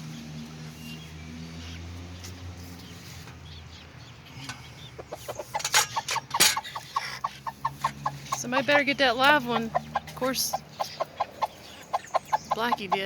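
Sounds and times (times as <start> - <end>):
chickens clucking: 4.3 - 13.0.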